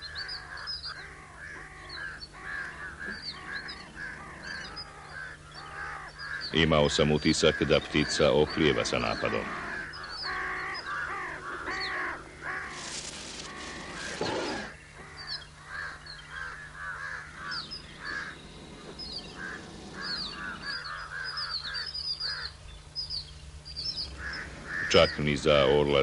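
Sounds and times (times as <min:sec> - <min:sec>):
birds chirping: 0:00.0 - 0:26.0
birds harsh calls: 0:00.0 - 0:26.0
steady low hum: 0:00.0 - 0:26.0
noisy rustle: 0:11.4 - 0:14.8, 0:17.2 - 0:21.2, 0:23.4 - 0:26.0.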